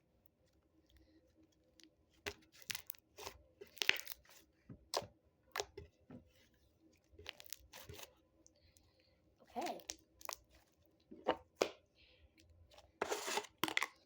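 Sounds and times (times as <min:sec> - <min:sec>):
slime popping and crunching: 0:02.3 - 0:04.3.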